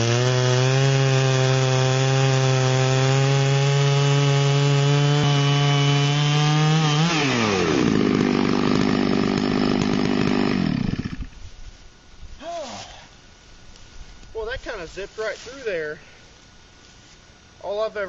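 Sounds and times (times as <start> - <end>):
chainsaw cutting log: 0.0 - 11.4.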